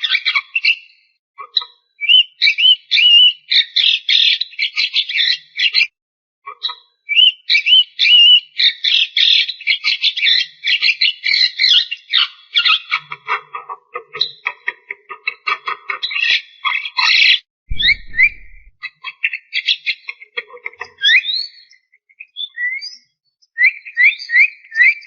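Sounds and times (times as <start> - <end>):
bird whistling: 17.7 - 18.7, 22.4 - 23.0.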